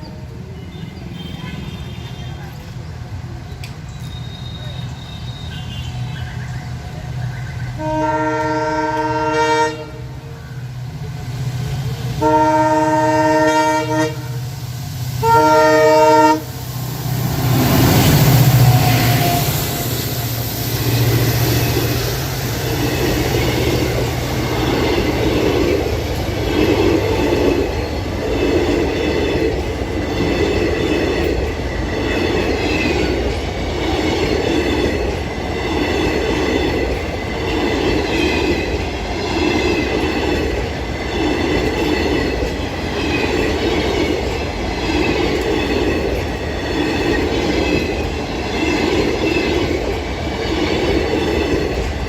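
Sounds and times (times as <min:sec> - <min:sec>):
train wheels beating over rail joints: 0:02.4 - 0:52.0
wheel squeal on rails: 0:03.6 - 0:06.7.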